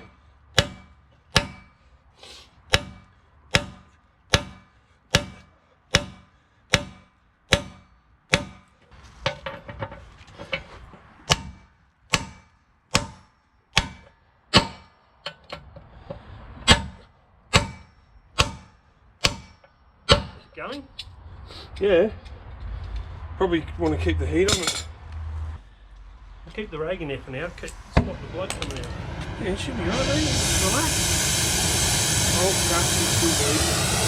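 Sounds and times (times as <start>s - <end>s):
hammer striking steel: 0.0s - 1.9s, 2.6s - 9.8s, 11.2s - 15.8s, 16.6s - 21.0s, 24.5s - 24.9s.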